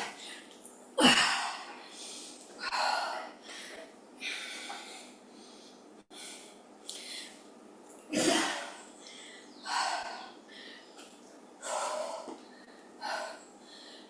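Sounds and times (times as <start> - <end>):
woman breathing hard: 1.2 - 7.4, 9.0 - 11.0, 11.6 - 14.0.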